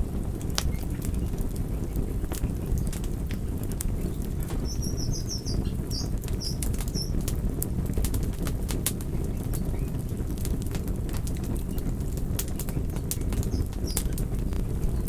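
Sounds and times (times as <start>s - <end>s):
campfire crackling and popping: 0.0s - 15.0s
bird chirping: 4.0s - 7.2s.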